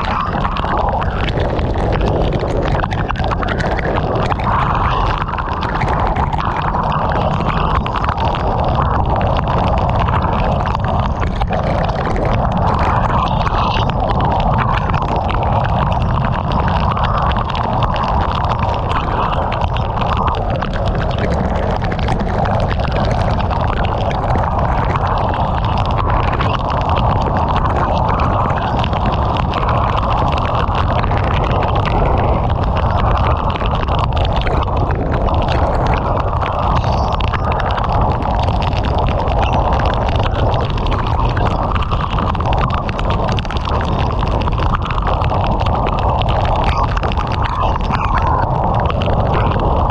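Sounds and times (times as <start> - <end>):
heavy rain pelting a car: 0.0 - 49.9.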